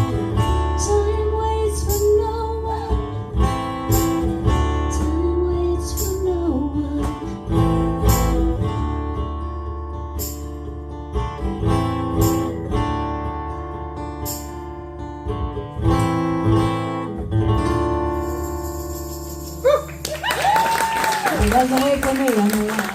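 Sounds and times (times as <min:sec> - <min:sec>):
acoustic guitar strumming: 0:00.0 - 0:20.1.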